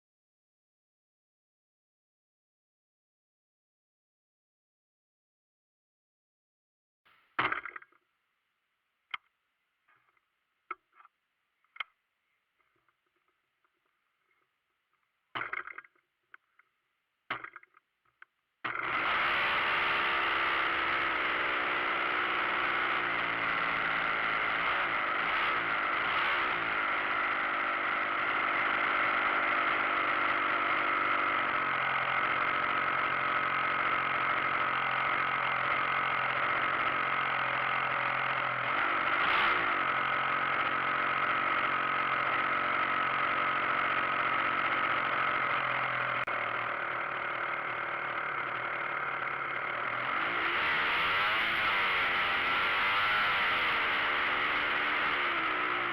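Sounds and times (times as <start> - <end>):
model airplane engine running: 18.7 - 55.9
model airplane engine sputtering: 18.7 - 55.9.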